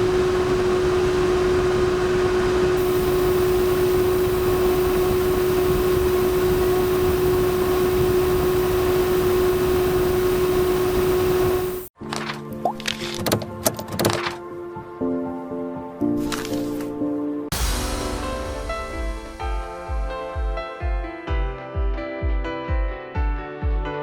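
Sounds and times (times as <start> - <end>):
electric fan whirring: 0.0 - 11.9.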